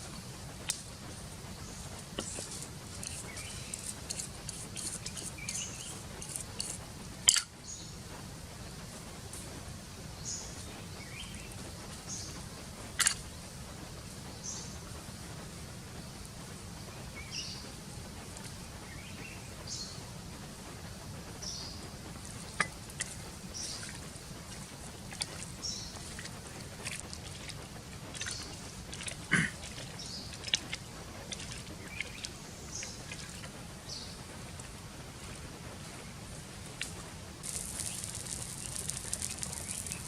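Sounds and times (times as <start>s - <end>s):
low outdoor background: 0.0s - 40.0s
high bird chirps: 37.4s - 40.0s.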